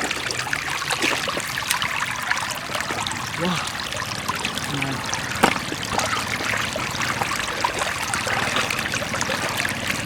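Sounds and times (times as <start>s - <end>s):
floodwater flowing: 0.0s - 10.0s
sharp knock: 5.4s - 5.6s.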